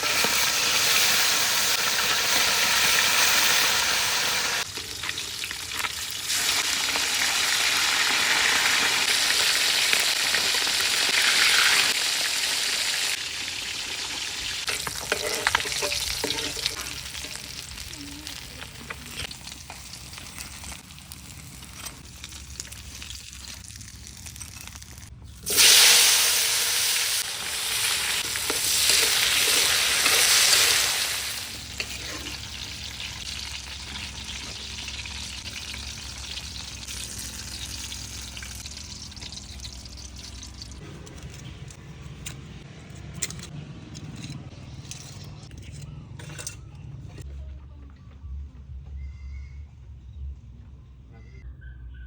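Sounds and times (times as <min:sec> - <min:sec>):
fish frying in hot oil: 0:00.0 - 0:40.8.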